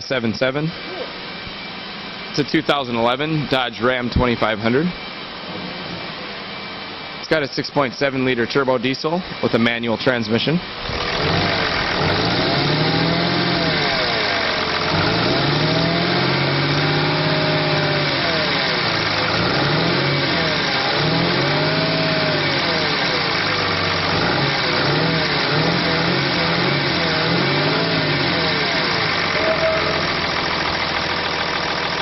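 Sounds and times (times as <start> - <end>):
diesel engine revving: 10.6 - 32.0.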